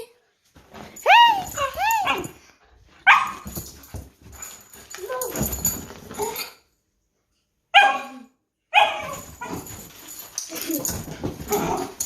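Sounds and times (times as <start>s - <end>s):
dog barking: 3.0s - 3.4s, 7.7s - 9.2s.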